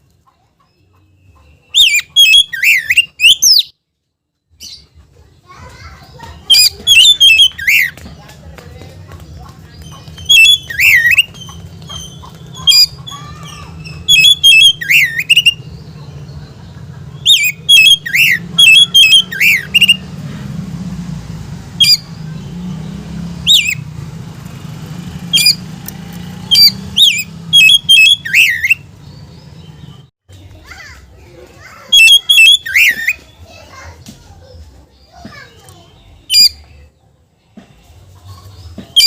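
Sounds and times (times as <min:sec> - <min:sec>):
bird calling sharp swooping notes: 0:17.2 - 0:20.1, 0:23.2 - 0:24.0, 0:24.9 - 0:28.9, 0:31.9 - 0:33.2.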